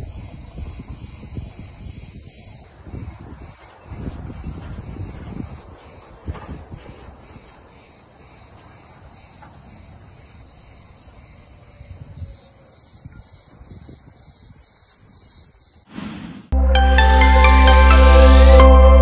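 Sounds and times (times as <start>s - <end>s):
music: 16.6s - 19.0s.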